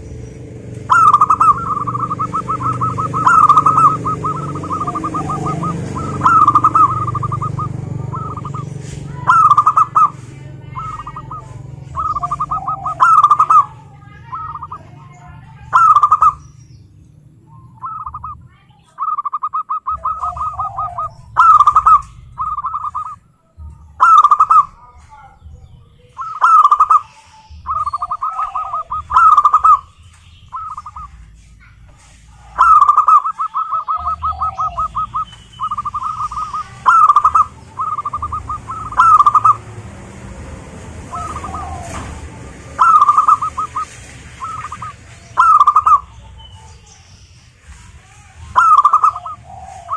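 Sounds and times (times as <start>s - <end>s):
doves cooing: 0.0s - 49.9s.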